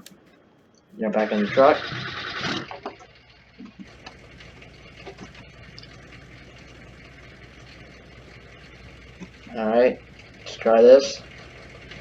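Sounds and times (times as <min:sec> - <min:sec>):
faint clicks: 0:00.0 - 0:01.0, 0:02.5 - 0:06.8, 0:07.6 - 0:09.6
diesel engine idling: 0:01.0 - 0:12.0.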